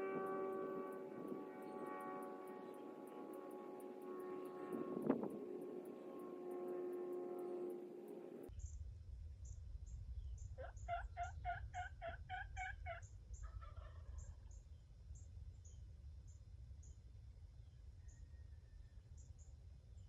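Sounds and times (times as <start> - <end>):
wind rumbling on microphone: 0.0 - 8.5.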